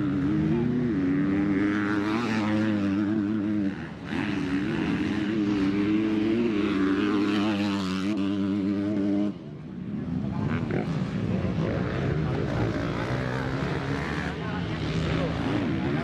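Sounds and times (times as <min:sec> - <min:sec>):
motocross bike engine revving: 0:00.0 - 0:09.4, 0:10.4 - 0:16.0.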